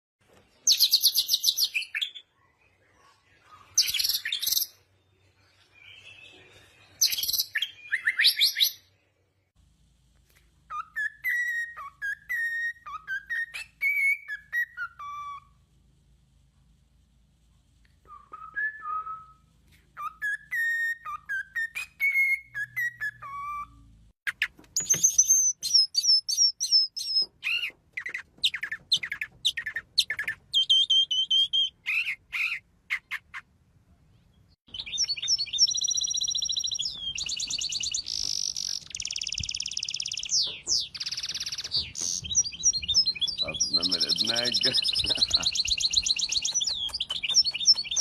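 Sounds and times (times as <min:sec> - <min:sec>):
songbirds singing and calling: 0:00.4 - 0:09.5, 0:20.0 - 0:48.0.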